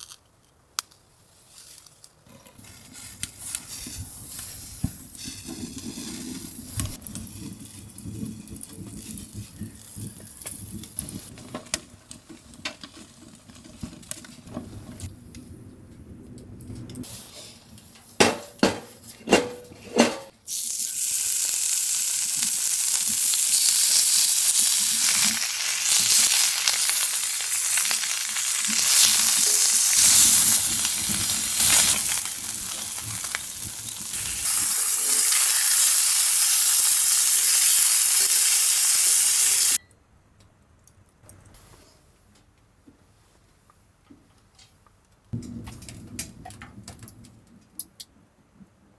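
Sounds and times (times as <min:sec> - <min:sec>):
food sizzling in a hot pan: 0:20.5 - 0:39.8.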